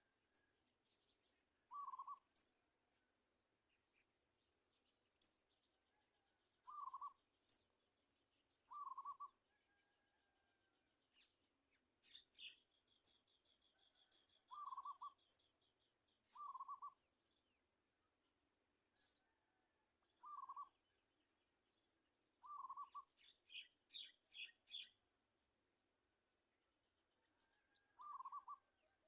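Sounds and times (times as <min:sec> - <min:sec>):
bird high chirps: 0:01.7 - 0:02.5, 0:06.7 - 0:07.6, 0:08.7 - 0:09.4, 0:14.0 - 0:15.4, 0:16.3 - 0:17.0, 0:20.2 - 0:20.7, 0:22.4 - 0:25.0, 0:27.4 - 0:28.6.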